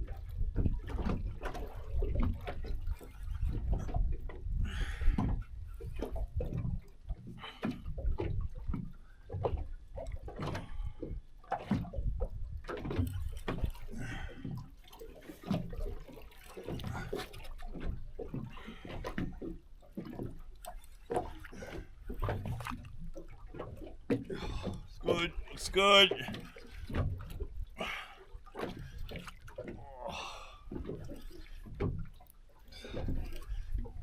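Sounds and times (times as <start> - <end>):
knocks and splashes: 0.0 - 34.0
water slapping boat hull: 0.0 - 34.0.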